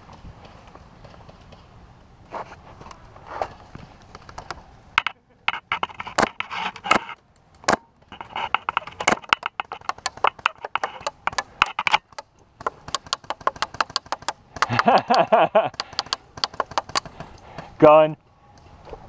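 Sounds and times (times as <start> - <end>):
crunching and rustling: 2.2 - 15.5
airsoft guns firing: 8.8 - 17.7.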